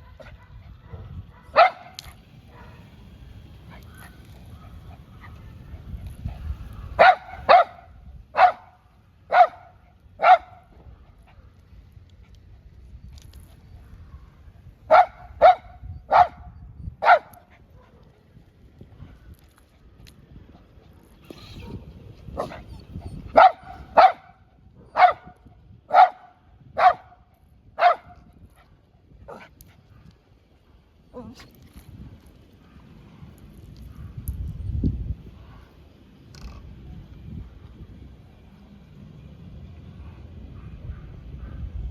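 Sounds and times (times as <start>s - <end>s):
dog barking: 0.0s - 2.9s, 6.8s - 10.7s, 14.9s - 18.0s, 23.3s - 27.2s, 27.8s - 28.2s
low rumbling noise: 0.6s - 13.0s.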